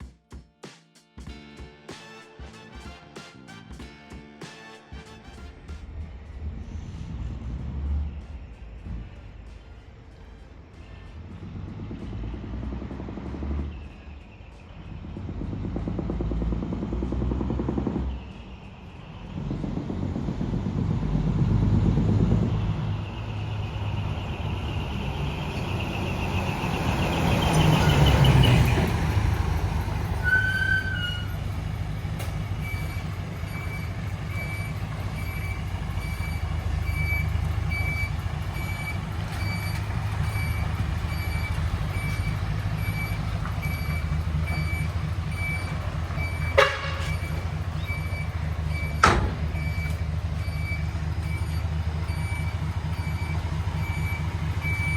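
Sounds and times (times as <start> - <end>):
diesel truck engine revving: 4.5 - 54.9
repeating beep: 32.6 - 54.9.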